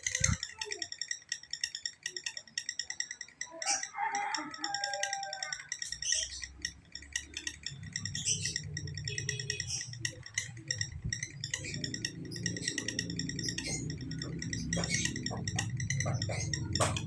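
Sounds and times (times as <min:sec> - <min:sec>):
lovebird chattering trill: 0:00.0 - 0:17.0
low hum: 0:05.9 - 0:17.0.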